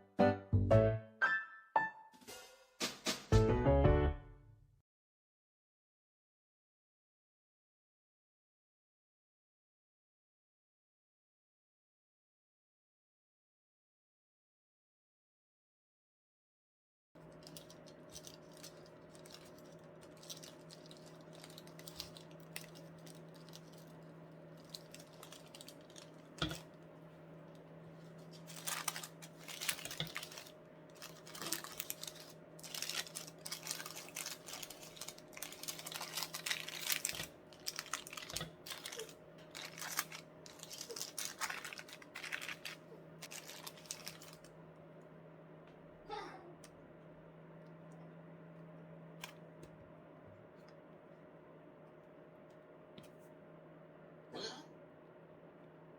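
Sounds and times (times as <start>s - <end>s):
steady electrical hum: 17.2s - 55.9s.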